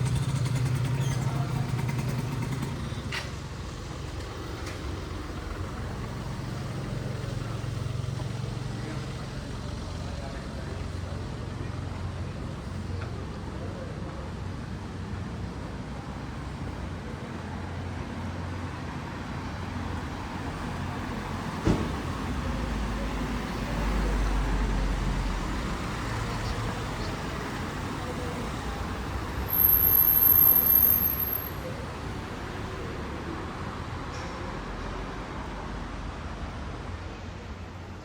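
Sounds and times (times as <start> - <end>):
low engine rumble: 0.0 - 38.0
vehicles passing: 0.0 - 38.0
sharp knock: 21.6 - 22.0.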